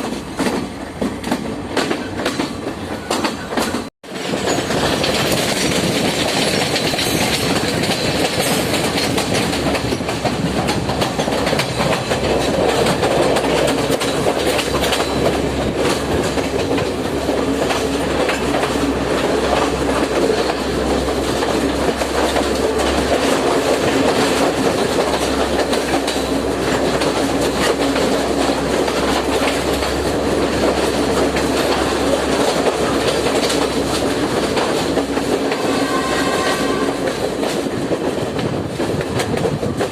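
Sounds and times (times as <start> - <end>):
train carriages rumbling: 0.0 - 39.9
wheels clacking over rails: 0.0 - 39.9.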